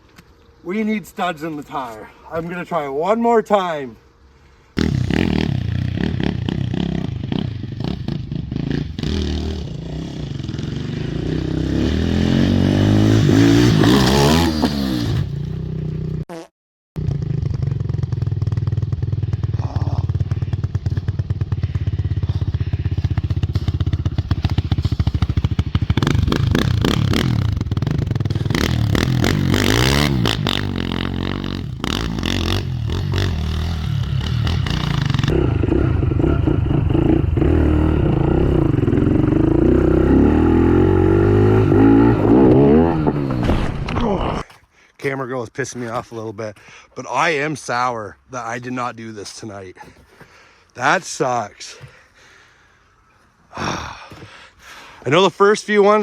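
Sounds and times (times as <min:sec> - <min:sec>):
motorbike engine revving: 0:04.8 - 0:16.2, 0:17.0 - 0:44.4.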